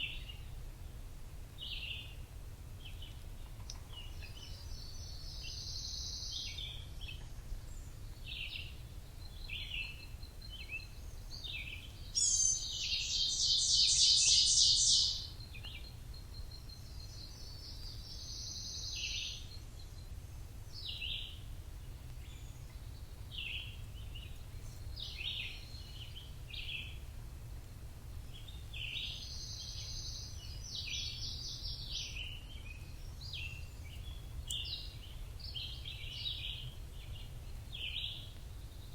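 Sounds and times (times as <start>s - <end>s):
birds chirping: 2.8s - 27.0s
bird rapid trill: 12.2s - 15.3s.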